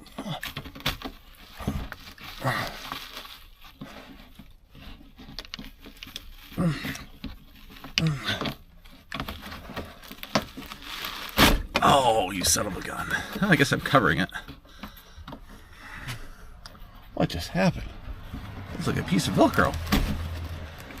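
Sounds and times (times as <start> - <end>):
rustling and crinkling headliner: 0.0 - 21.0
person grunting: 6.6 - 7.1, 8.0 - 8.5.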